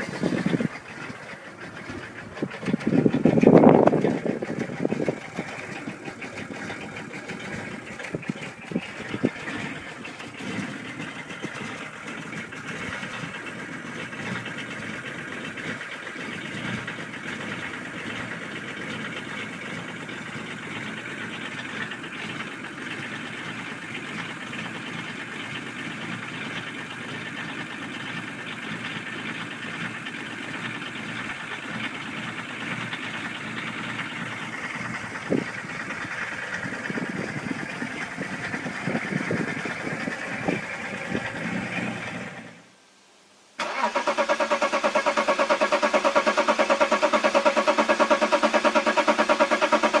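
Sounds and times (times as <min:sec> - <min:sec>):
diesel car engine idling: 0:00.0 - 0:42.7, 0:43.6 - 0:50.0
sharp engine knock: 0:45.6 - 0:50.0.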